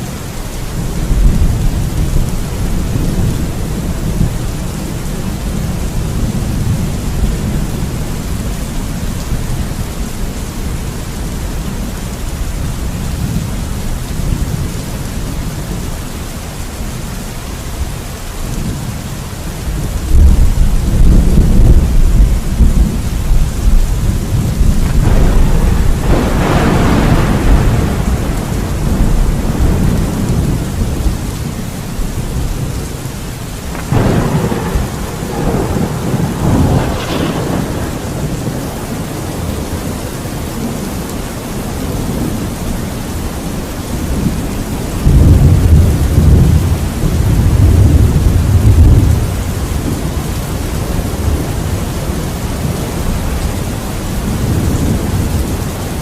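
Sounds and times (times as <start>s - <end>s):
steady rain: 0.0s - 56.0s
crackling thunderclaps: 0.6s - 10.6s, 19.6s - 56.0s
rolling thunder: 19.7s - 32.9s, 33.5s - 41.0s, 43.8s - 56.0s.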